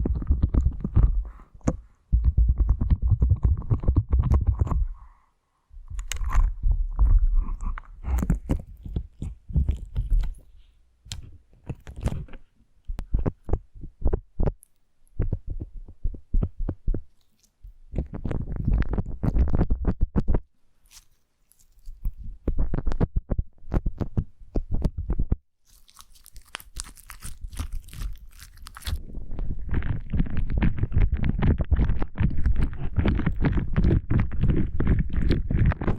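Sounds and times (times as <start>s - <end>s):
slime squished by hand: 25.6s - 35.9s.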